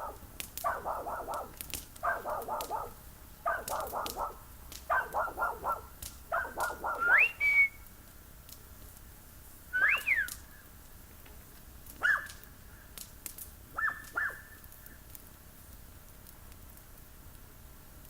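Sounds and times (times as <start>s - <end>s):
person whistling: 7.0s - 7.8s, 9.8s - 10.3s.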